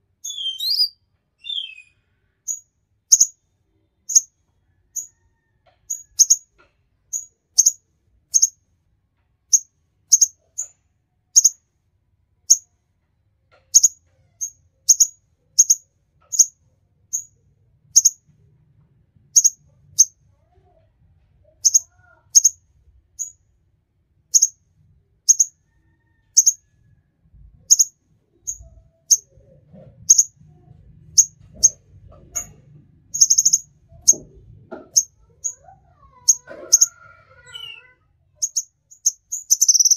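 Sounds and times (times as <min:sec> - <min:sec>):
bird giving sharp high chirps: 0:00.2 - 0:03.3, 0:33.2 - 0:33.6, 0:36.3 - 0:39.9.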